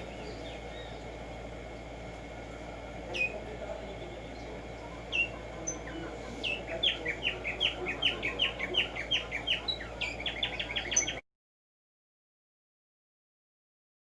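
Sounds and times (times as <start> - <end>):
sparrow singing: 0.0 - 11.2.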